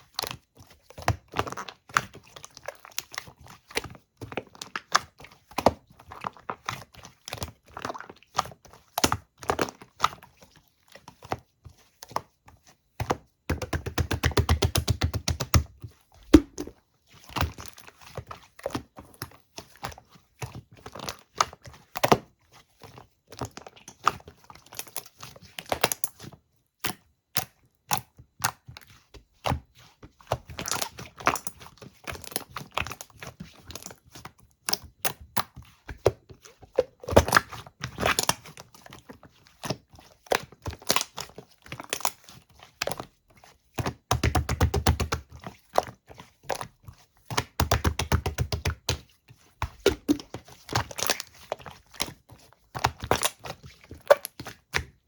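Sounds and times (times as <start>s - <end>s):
sharp clicks and taps: 13.5s - 15.7s, 16.3s - 16.7s.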